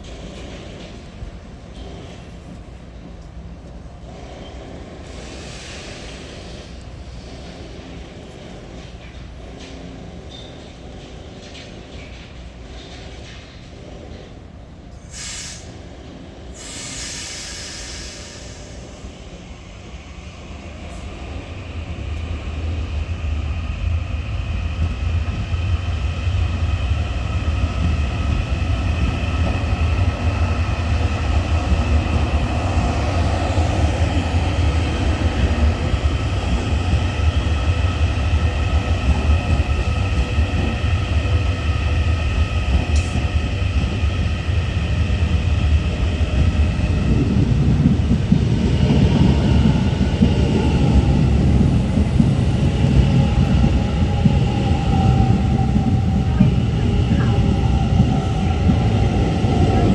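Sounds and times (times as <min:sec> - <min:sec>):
train rumble: 0:00.0 - 0:59.9.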